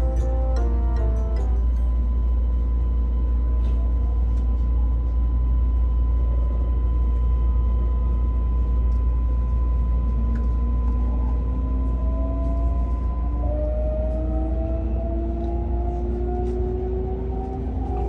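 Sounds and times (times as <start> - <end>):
train heavy low rumble: 0.0 - 18.0.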